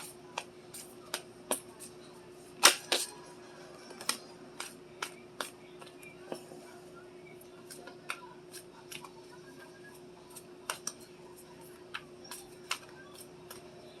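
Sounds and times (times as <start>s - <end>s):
cards clicking and tapping: 0.0s - 1.7s, 2.6s - 3.1s, 3.9s - 5.9s, 10.6s - 11.0s, 11.9s - 13.7s
faint steady hum: 0.0s - 14.0s.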